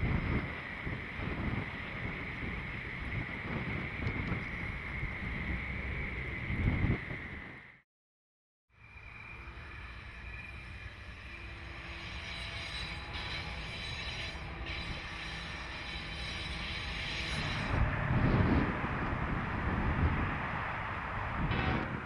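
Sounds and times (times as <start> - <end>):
train rumbling: 0.0 - 7.8, 8.8 - 22.0
heavy low rumble: 17.5 - 22.0.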